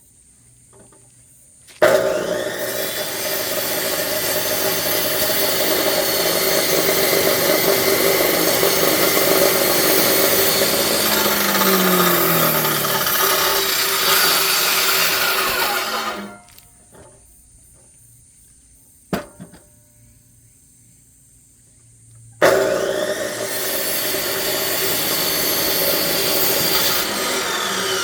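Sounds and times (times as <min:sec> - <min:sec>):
electric saw cutting log: 0:01.7 - 0:16.6, 0:22.4 - 0:28.0.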